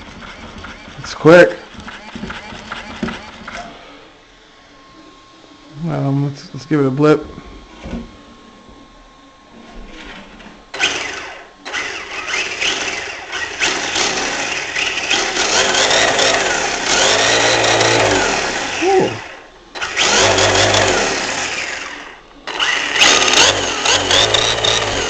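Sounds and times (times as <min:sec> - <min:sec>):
electric motor whirring: 0:10.0 - 0:25.0.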